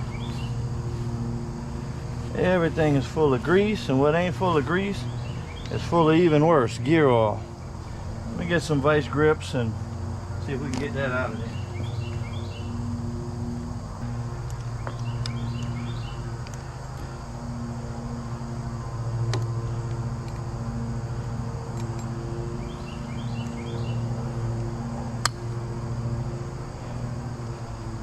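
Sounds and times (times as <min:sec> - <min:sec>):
bird chirping: 0:00.0 - 0:00.7, 0:05.0 - 0:06.0, 0:11.4 - 0:12.9, 0:14.8 - 0:16.3, 0:22.6 - 0:24.1
low mechanical hum: 0:00.0 - 0:28.0.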